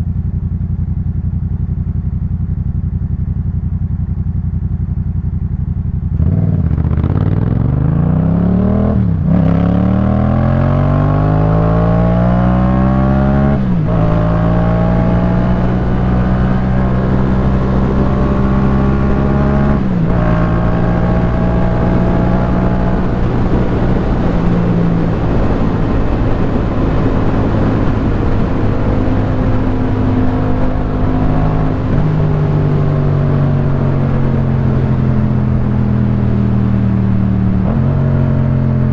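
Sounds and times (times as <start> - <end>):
motorcycle engine accelerating: 0.0 - 38.9
wind noise: 8.6 - 38.9.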